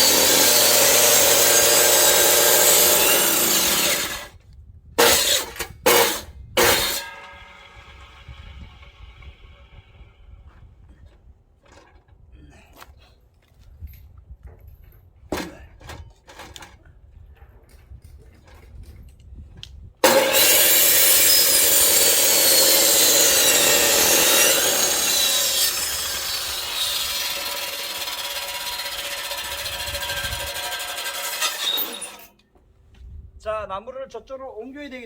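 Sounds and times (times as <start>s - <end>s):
electric chainsaw cutting wood: 0.0s - 4.3s, 5.0s - 9.4s, 20.0s - 32.3s.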